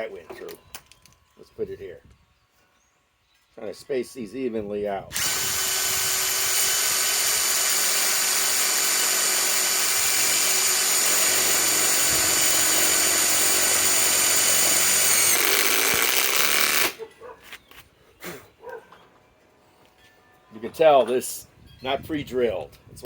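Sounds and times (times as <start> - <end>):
impact wrench driving screw into wood: 5.2 - 17.0.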